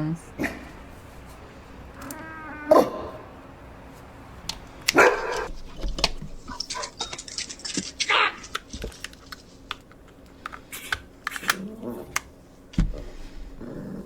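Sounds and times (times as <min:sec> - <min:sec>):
dog barking: 0:04.9 - 0:05.5.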